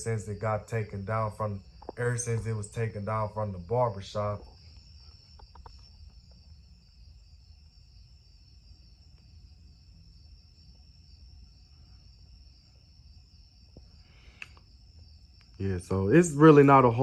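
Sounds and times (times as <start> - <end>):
faint ticks: 13.7 - 14.7.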